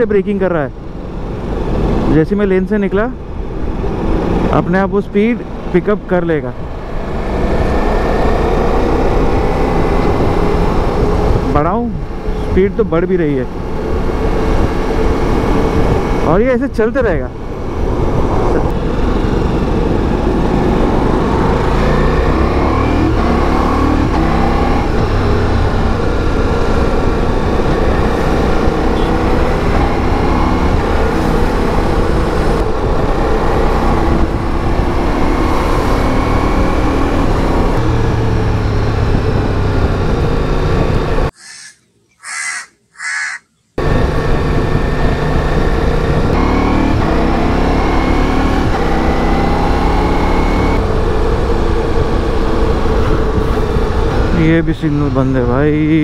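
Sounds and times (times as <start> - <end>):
wind and road noise: 0.0 - 56.0
motorcycle engine: 17.3 - 41.7.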